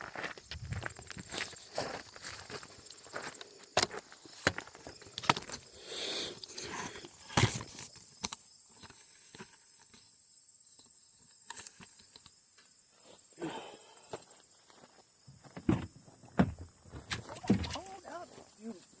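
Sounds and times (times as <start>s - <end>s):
high-pitched hiss: 5.6s - 19.0s.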